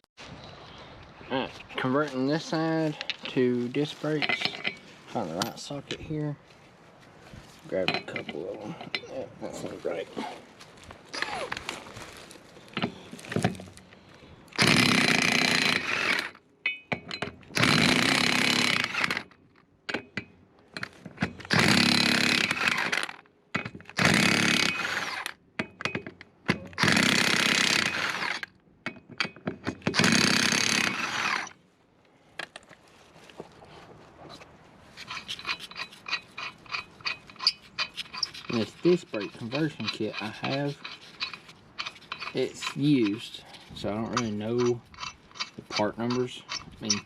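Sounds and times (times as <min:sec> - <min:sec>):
socket and tools clinking: 0:35.0 - 0:43.2, 0:44.1 - 0:47.0.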